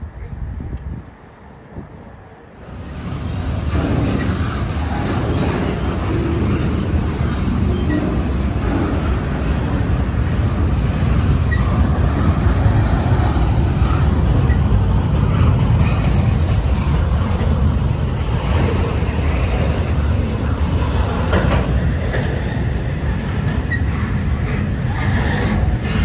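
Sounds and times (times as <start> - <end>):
freight train rumbling past: 1.4 - 26.0.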